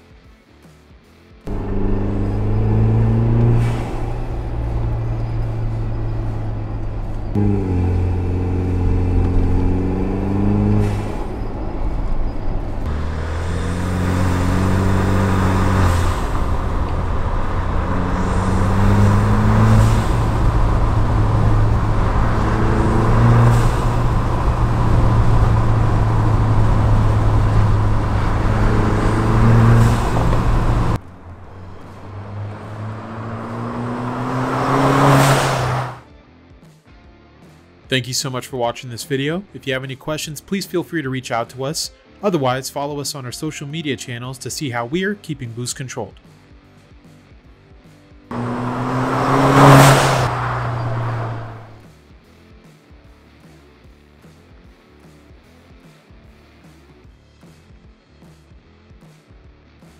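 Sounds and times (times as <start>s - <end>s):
car driving past: 1.5s - 36.0s, 48.3s - 51.9s
car engine accelerating through gears: 1.5s - 36.0s, 48.3s - 51.9s
wind and road noise: 1.5s - 36.0s, 48.3s - 51.9s.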